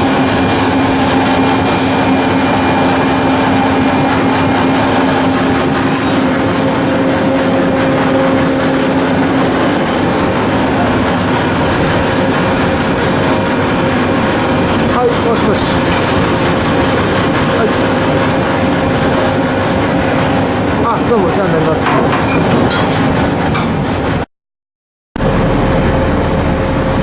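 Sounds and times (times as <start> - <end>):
higher hum tone: 0.0 - 20.8, 25.2 - 27.0
low machinery hum: 0.0 - 24.2, 25.2 - 27.0.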